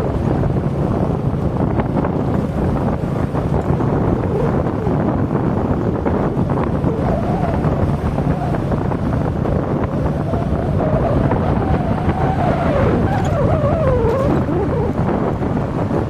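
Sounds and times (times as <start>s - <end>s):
motorcycle engine: 0.0s - 16.0s
wind rushing over microphone: 0.0s - 16.0s.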